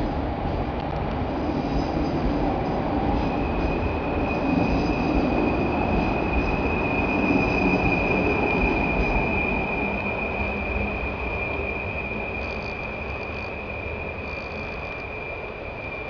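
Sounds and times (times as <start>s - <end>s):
train wheels rumbling on rails: 0.0s - 16.0s
high-pitched wheel squeal: 3.2s - 16.0s.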